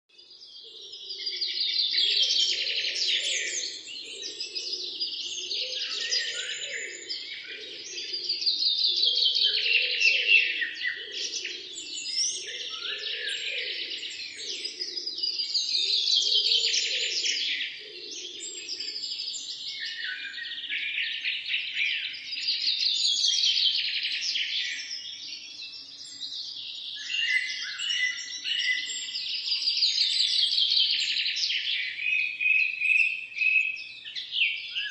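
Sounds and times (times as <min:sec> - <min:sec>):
songbirds chirping: 0:00.1 - 0:34.9.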